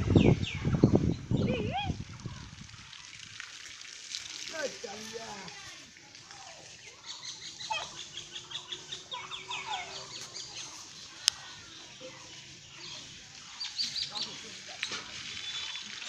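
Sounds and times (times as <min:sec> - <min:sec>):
birds chirping: 0:00.0 - 0:03.2, 0:04.5 - 0:16.0.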